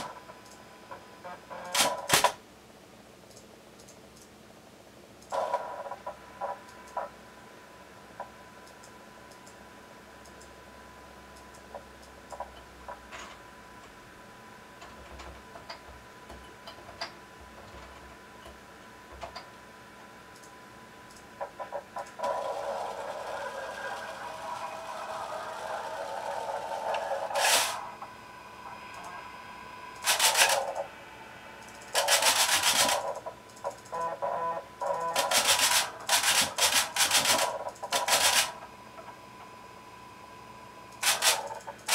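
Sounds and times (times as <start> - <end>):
servo motor whine: 22.2 - 31.2.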